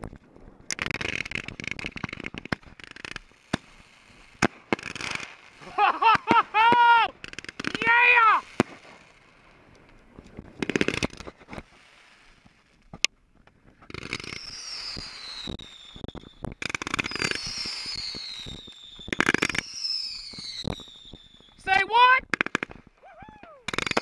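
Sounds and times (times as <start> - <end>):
fireworks crackling: 0.0 - 24.0
firework whistles sliding down: 14.0 - 21.6.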